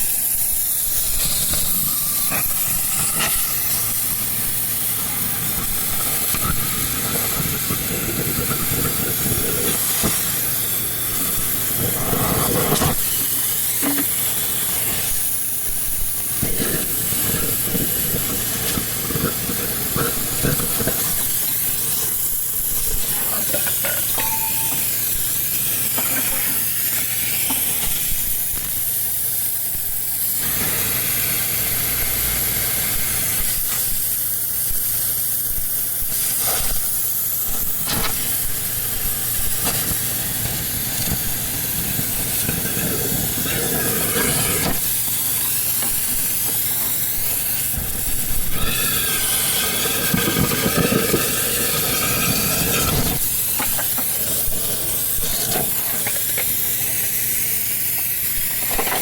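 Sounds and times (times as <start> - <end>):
steady hiss: 0.0 - 59.0
ringing whining tones: 23.1 - 26.2.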